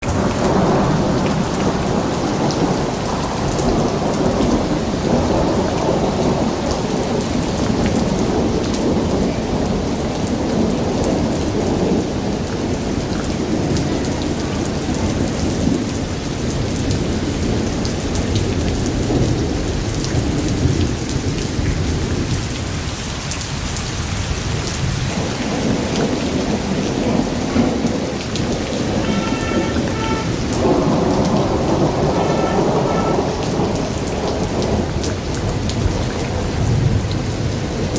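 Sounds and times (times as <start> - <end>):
heavy rain falling: 0.0 - 37.9
rain drop ticks: 25.8 - 37.9.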